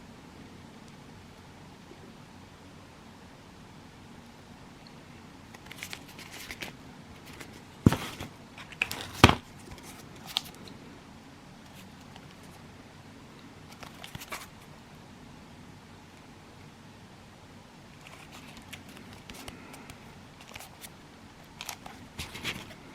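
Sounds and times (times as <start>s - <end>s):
packaging rustling: 5.5s - 10.6s, 18.0s - 22.8s.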